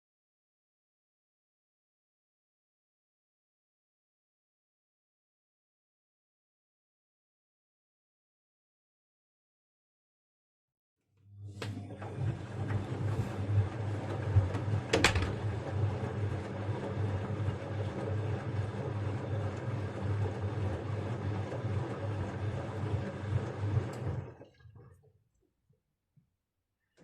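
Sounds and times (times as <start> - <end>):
washing machine running: 11.3 - 25.1.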